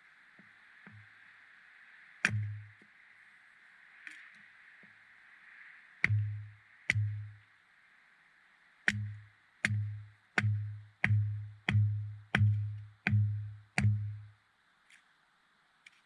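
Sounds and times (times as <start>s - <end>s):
electronic kick drum thumps: 2.3s - 2.7s, 6.0s - 7.3s, 8.9s - 14.3s.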